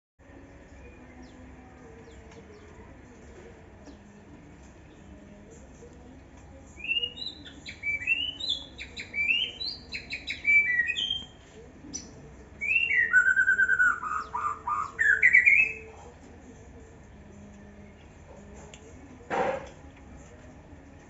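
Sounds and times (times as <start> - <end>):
bird singing whistled notes: 6.8 - 11.4, 12.0 - 15.9.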